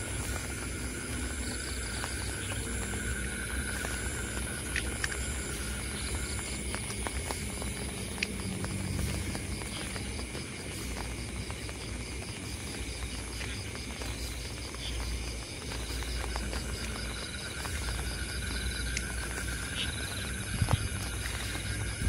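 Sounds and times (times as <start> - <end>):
insects high trill: 0.0 - 22.0
insects pulsing chirp: 0.0 - 22.0
rain falling: 0.0 - 22.0.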